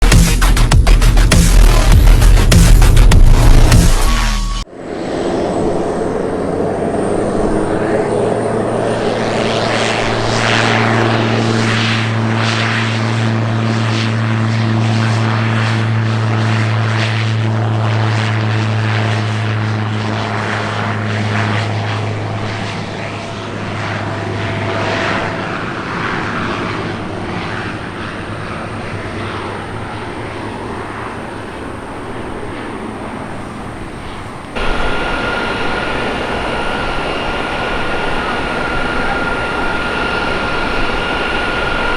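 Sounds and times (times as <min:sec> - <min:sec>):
aircraft engine high whine: 0:00.0 - 0:41.9
propeller engine drone: 0:00.0 - 0:41.9
rushing noise: 0:27.1 - 0:41.9.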